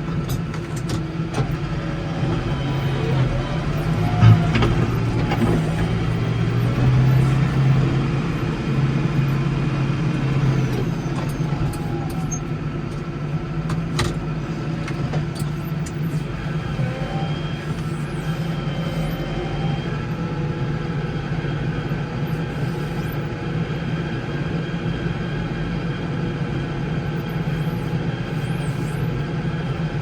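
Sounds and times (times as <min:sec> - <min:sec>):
garden tractor engine running: 0:00.0 - 0:21.6.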